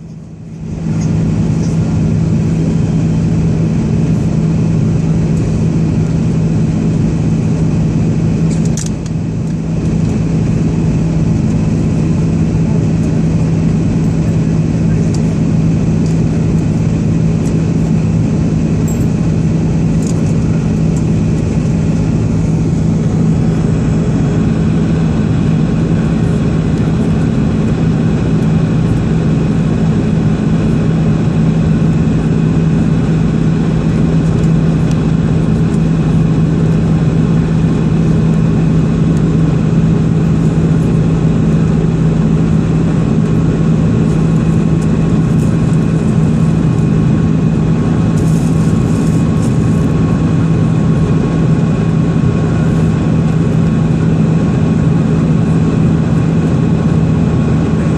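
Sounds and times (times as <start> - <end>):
jet engines droning in cabin: 0.0 - 57.9.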